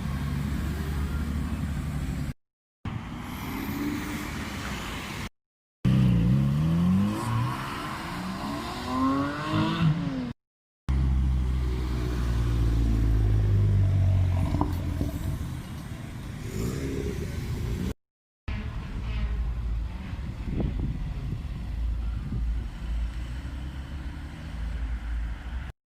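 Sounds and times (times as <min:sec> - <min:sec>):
car engines revving hard: 0:05.9 - 0:10.4, 0:11.4 - 0:18.0.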